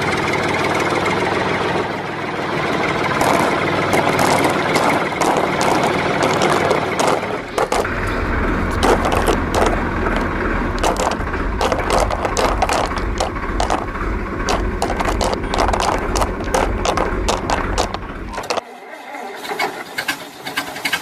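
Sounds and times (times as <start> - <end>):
steady low hum: 3.1 - 18.6
clatter of small hard knocks: 3.2 - 18.6.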